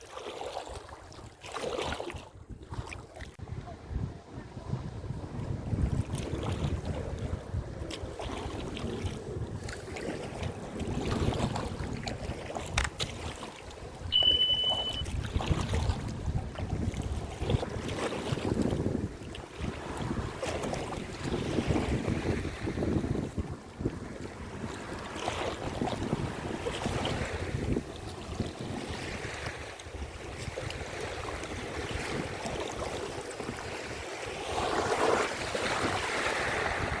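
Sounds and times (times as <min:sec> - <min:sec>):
water splashing around kayak: 0:00.0 - 0:37.0
wind rumbling on microphone: 0:02.2 - 0:37.0
short high beep: 0:14.1 - 0:15.1.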